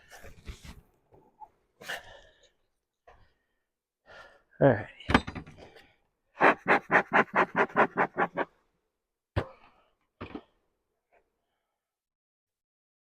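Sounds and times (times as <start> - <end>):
person breathing in rapid pulses: 6.4 - 8.4.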